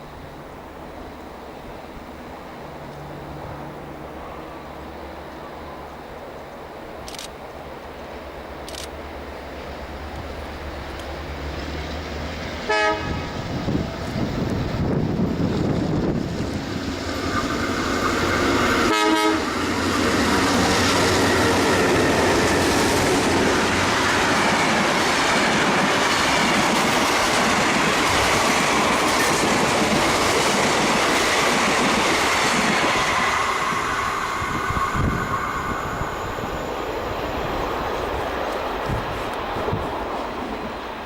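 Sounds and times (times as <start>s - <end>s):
train passing close by: 0.0s - 41.0s
train horn blast: 12.6s - 13.6s, 18.7s - 19.9s.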